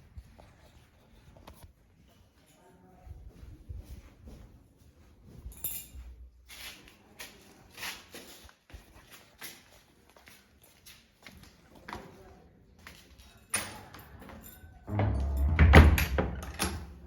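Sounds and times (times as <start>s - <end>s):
footsteps down wooden stairs: 14.9s - 16.6s
low rumbling handling noise: 14.9s - 17.0s.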